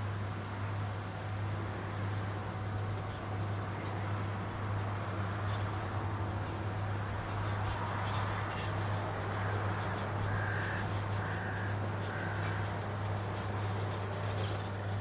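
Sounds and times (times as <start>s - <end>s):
crow cawing: 9.3s - 12.7s.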